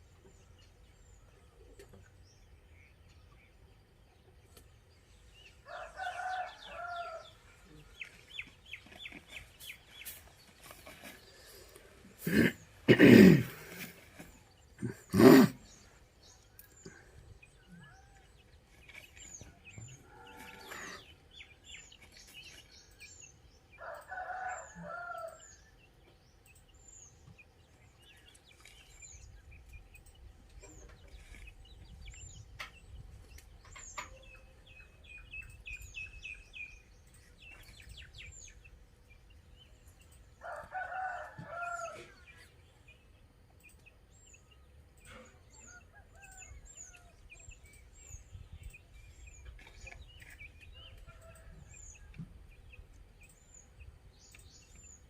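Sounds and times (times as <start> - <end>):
small birds chirping: 0.0 - 55.0
rooster crowing: 5.6 - 7.4, 23.8 - 25.4, 40.4 - 42.1.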